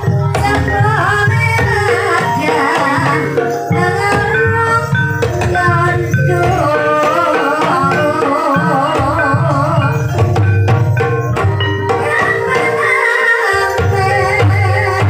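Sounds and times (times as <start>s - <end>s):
pitched melodic instruments: 0.0s - 15.0s.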